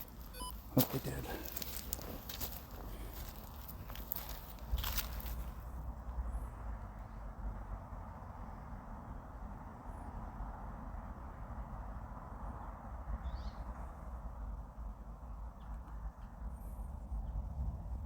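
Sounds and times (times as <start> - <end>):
wind rumbling on microphone: 16.0 - 18.0.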